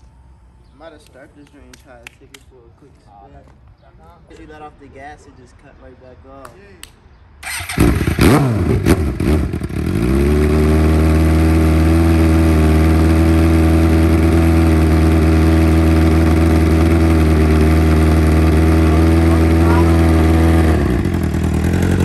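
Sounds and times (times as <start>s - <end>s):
motorcycle engine revving and idling: 7.4s - 22.0s.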